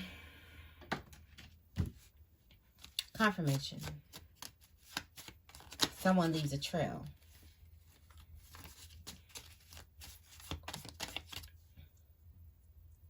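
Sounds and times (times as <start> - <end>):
playing cards being shuffled: 2.8 - 11.5.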